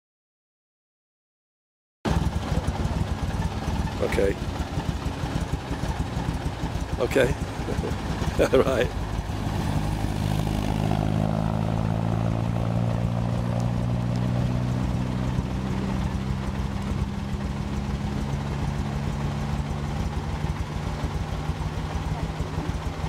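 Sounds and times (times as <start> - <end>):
car engine running: 2.1 - 23.0.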